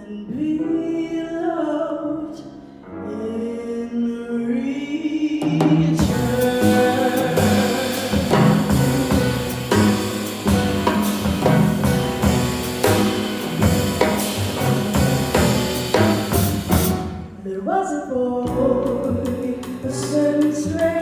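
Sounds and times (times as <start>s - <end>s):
drum kit beat: 5.6s - 17.4s, 18.5s - 21.0s
bass notes: 6.0s - 17.5s, 18.5s - 21.0s.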